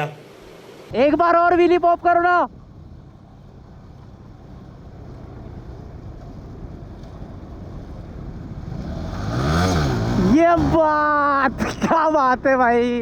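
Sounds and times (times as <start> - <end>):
motorcycle engine revving: 8.5 - 11.6.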